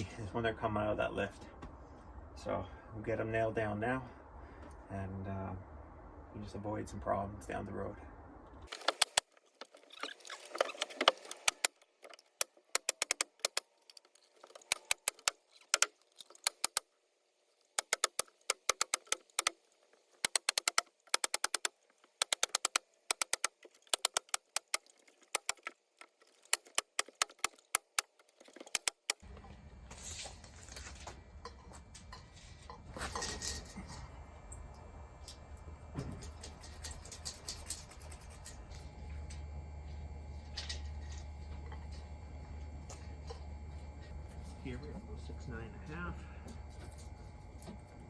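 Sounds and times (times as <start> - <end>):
steady low hum: 29.2 - 48.0.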